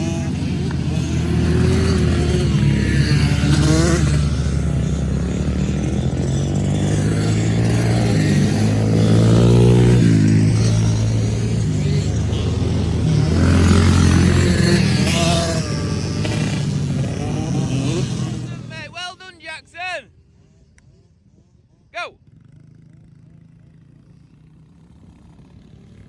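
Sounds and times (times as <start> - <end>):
engine revving to higher pitch: 0.0 - 19.0
dirt bike engines running: 0.0 - 26.0.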